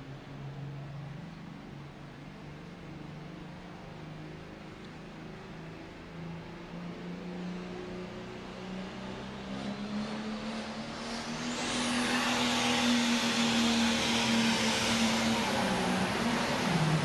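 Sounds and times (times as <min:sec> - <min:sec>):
high turbo whine: 0:09.5 - 0:17.0.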